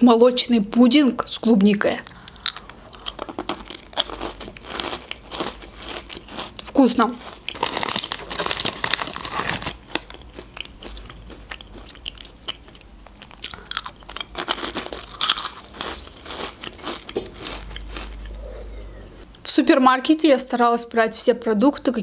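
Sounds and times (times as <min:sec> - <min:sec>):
crunching and chewing biscuits: 0:01.7 - 0:19.2
plastic snack bag rustling: 0:03.0 - 0:10.4, 0:13.7 - 0:18.2.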